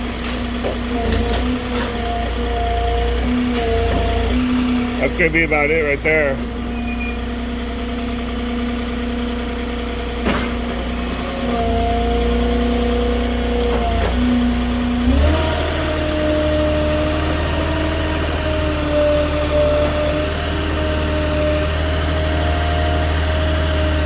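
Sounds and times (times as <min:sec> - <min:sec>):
forklift engine running: 0:00.0 - 0:24.0.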